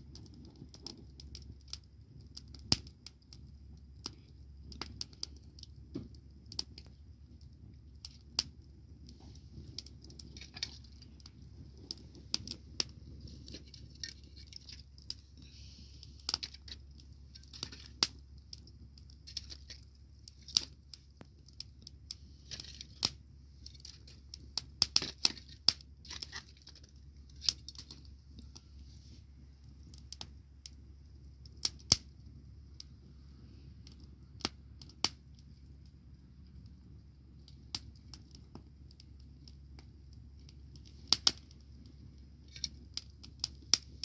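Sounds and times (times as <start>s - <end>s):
bonfire crackling and popping: 0.0s - 44.0s
faint hiss: 15.3s - 16.4s.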